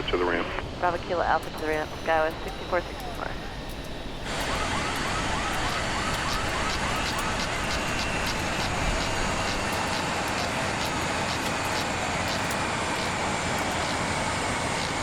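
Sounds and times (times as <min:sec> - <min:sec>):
steady noise: 0:00.0 - 0:15.0
electronic siren yelp: 0:04.2 - 0:15.0.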